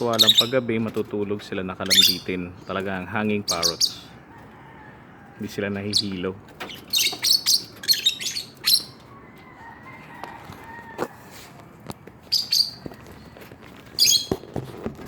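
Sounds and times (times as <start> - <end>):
parrots chirping shrilly: 0.0 - 0.6, 1.8 - 2.3, 3.4 - 4.2, 5.9 - 9.0, 12.3 - 12.8, 14.0 - 14.3.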